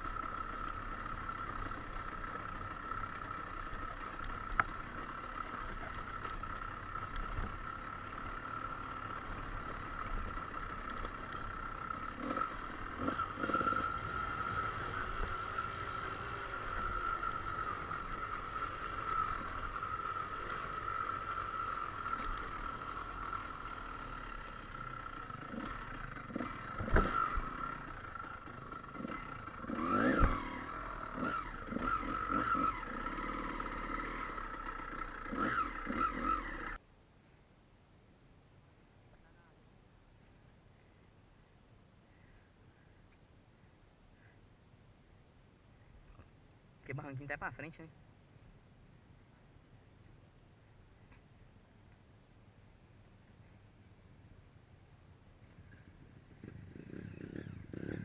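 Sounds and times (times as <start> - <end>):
motorcycle engine at low revs: 0.0 - 36.9, 45.8 - 58.0.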